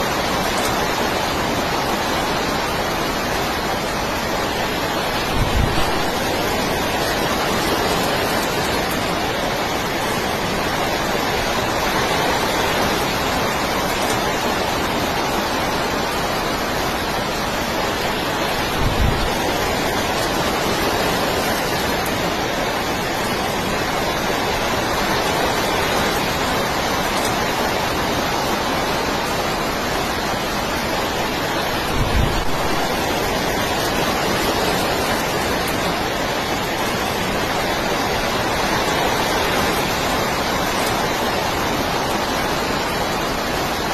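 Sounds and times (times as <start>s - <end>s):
heavy rain: 0.0s - 43.9s
storm wind: 0.0s - 43.9s
wind buffeting microphone: 4.9s - 9.0s, 18.4s - 22.0s, 31.7s - 35.3s.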